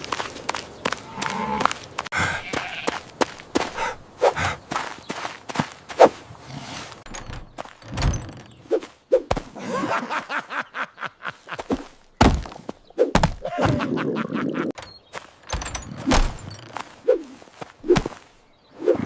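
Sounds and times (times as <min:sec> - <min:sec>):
dull thuds and knocks: 0:12.2 - 0:13.5.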